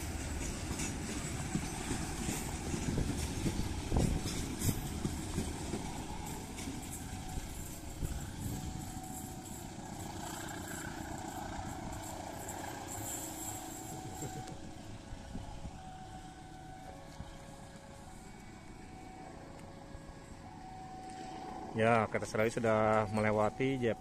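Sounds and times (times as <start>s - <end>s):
train wheels clattering on track: 0.0s - 14.8s.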